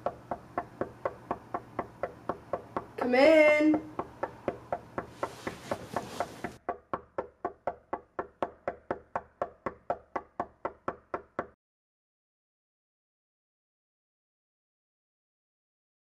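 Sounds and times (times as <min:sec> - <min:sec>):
knocking on a wooden door: 0:00.0 - 0:11.6
short rustling: 0:05.0 - 0:06.6.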